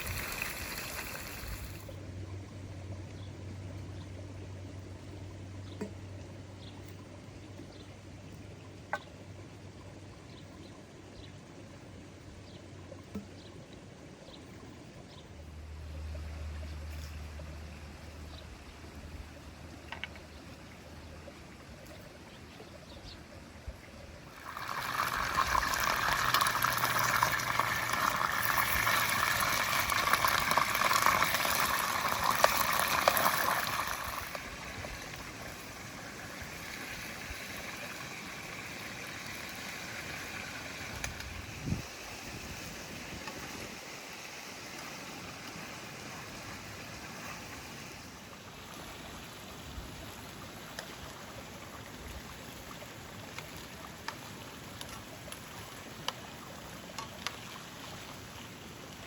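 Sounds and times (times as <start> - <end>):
rush of running water: 0.0 - 2.0, 24.0 - 59.0
water trickling: 0.0 - 13.9, 23.8 - 43.9.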